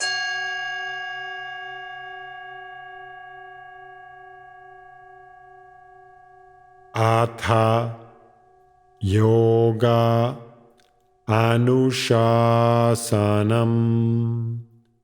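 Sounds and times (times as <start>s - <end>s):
meditation bell ringing: 0.0s - 9.1s.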